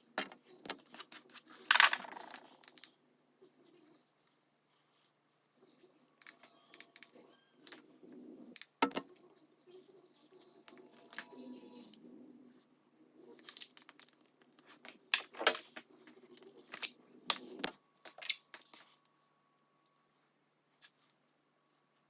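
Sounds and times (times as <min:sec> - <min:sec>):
crinkling handling noises: 0:00.0 - 0:02.9, 0:13.4 - 0:22.0.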